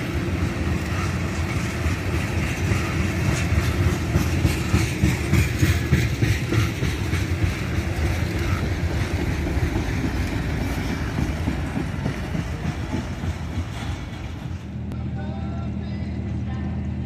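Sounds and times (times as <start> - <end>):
train wheels clacking over rail joints: 0.0 - 15.0.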